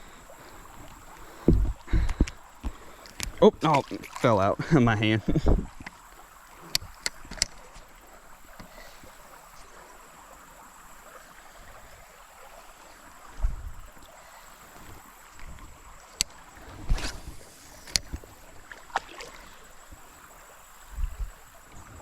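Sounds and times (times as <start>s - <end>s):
water moving around a kayak: 0.0s - 22.0s
dull low knock: 1.4s - 2.3s.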